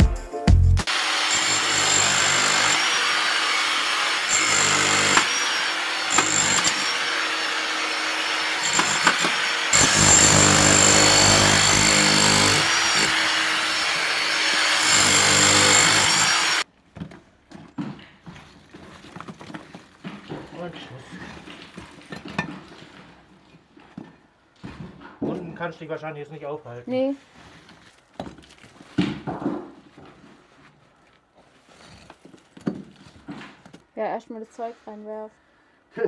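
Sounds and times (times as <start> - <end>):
power tool breaking masonry: 0.9 - 16.6.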